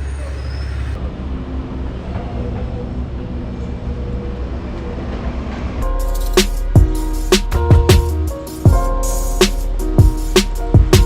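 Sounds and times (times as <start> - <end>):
city traffic: 0.0 - 11.0.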